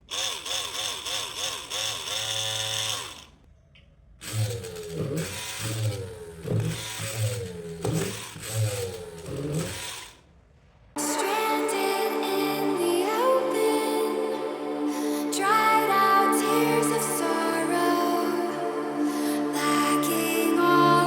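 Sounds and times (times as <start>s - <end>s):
small electric motor whining: 0.0s - 3.4s, 4.2s - 10.2s.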